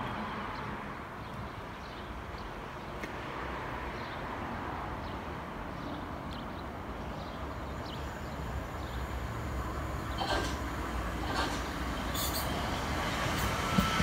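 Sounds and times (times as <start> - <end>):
train rumbling on rails: 7.4 - 14.0.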